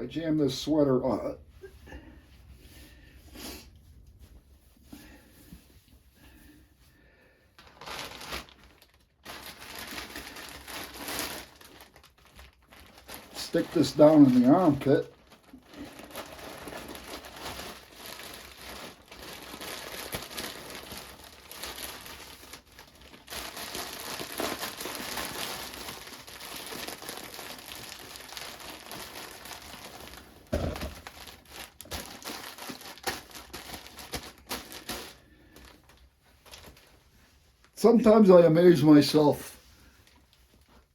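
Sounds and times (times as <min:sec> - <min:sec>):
ice pack crinkling and rustling: 0:07.6 - 0:37.0.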